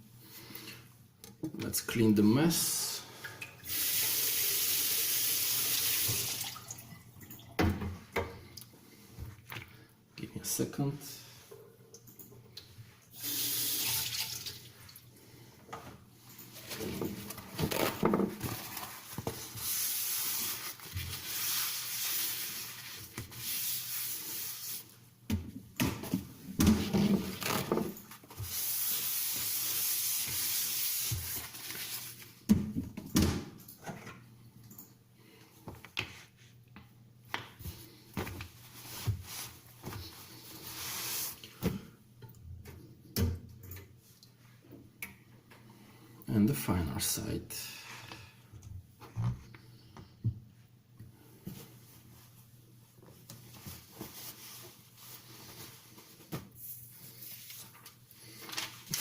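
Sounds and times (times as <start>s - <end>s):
water tap running: 3.7s - 6.9s, 13.1s - 14.7s.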